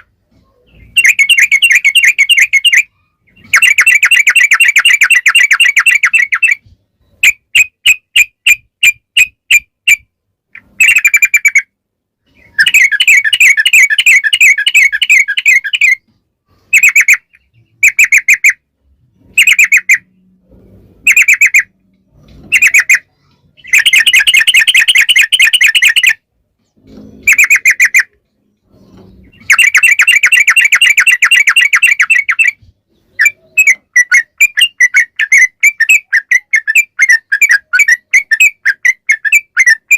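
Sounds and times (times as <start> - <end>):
bulbul singing bubbly trills: 0.7 - 6.6, 21.0 - 26.2, 27.3 - 39.9.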